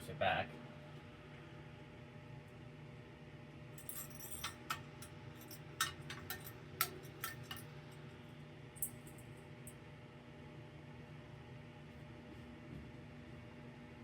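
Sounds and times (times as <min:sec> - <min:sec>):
low steady hum: 0:00.0 - 0:14.0
metallic and glassy clinks: 0:03.8 - 0:07.7.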